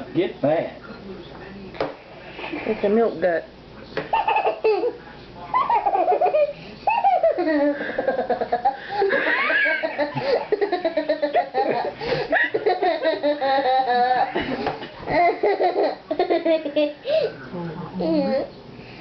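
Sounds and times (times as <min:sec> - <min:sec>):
people laughing: 0:04.1 - 0:16.9
people talking: 0:17.3 - 0:18.5.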